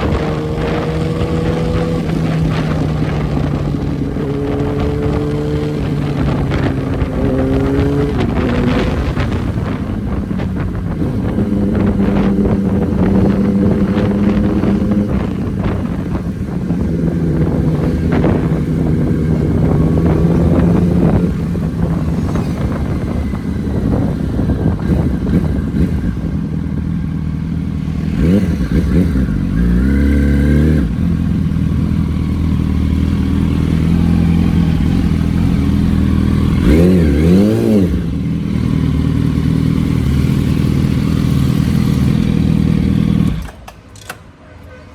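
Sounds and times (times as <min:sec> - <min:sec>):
motorcycle engine running: 0:00.0 - 0:43.6.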